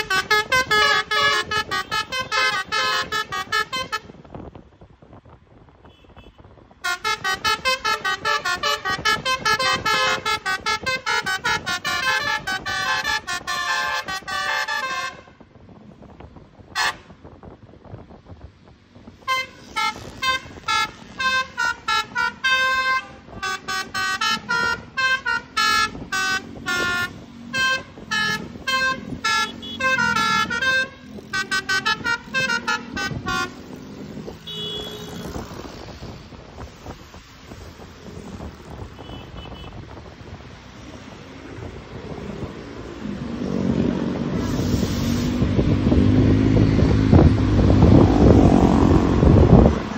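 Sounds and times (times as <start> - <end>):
musical air horn playing tune: 0.0 - 4.1, 6.8 - 15.3, 16.8 - 17.1, 19.3 - 35.4.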